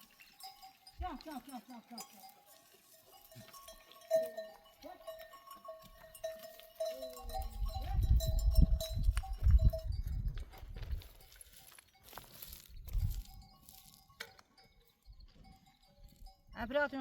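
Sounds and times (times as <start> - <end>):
sheep and goats bleating: 0.0 - 8.2.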